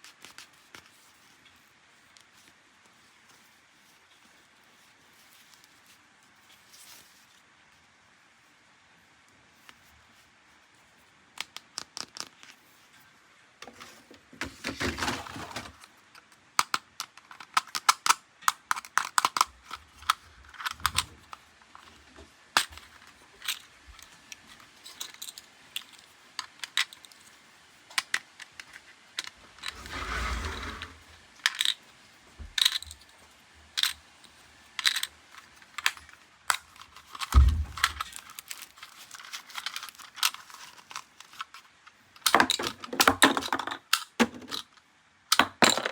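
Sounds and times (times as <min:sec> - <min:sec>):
packaging rustling: 0:35.4 - 0:41.6.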